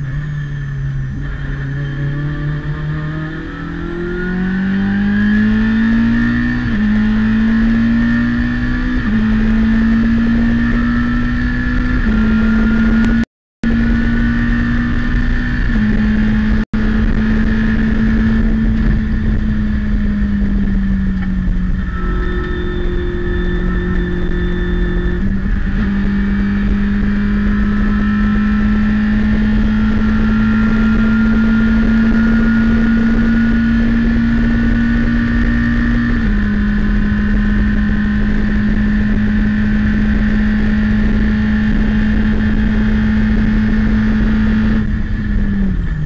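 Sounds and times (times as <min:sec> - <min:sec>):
race car engine at high revs: 0:00.0 - 0:46.0.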